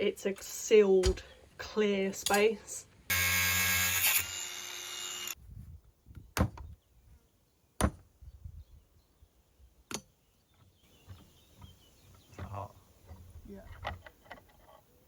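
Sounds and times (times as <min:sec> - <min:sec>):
power tool cutting padlock: 0:03.1 - 0:05.4.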